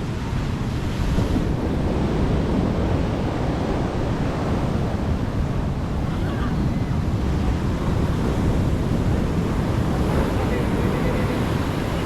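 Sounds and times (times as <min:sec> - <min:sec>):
sea waves breaking on shore: 0:00.0 - 0:12.0
wind buffeting microphone: 0:00.0 - 0:12.0.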